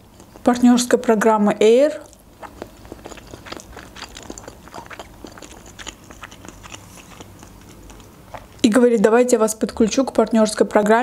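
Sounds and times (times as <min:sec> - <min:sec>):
person chewing food: 0:00.0 - 0:00.5, 0:02.0 - 0:08.6.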